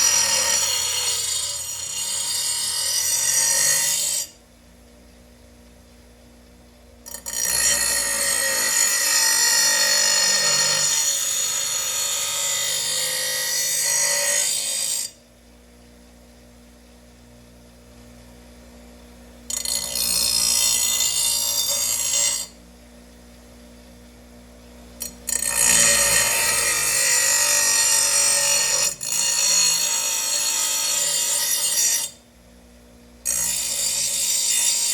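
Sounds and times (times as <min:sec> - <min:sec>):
power grinder grinding steel: 0:00.0 - 0:04.4, 0:07.1 - 0:15.2, 0:19.5 - 0:22.6, 0:25.0 - 0:32.2, 0:33.3 - 0:34.9.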